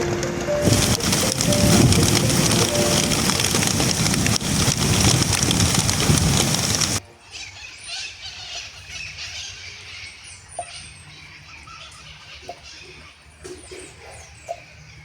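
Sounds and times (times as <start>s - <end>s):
faint steady hiss: 0.0s - 7.2s
small birds chirping: 0.7s - 15.0s.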